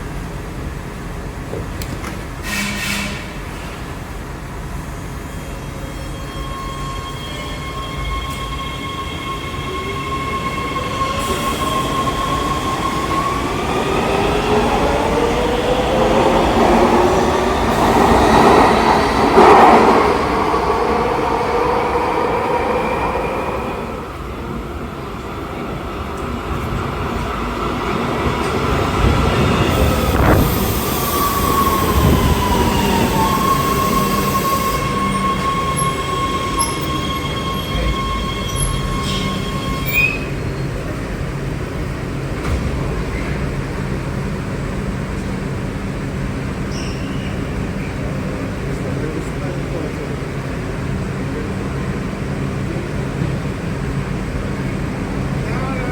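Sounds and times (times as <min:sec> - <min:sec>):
train low hum: 0:00.0 - 0:55.9
wheel squeal: 0:29.5 - 0:40.7, 0:46.7 - 0:48.0.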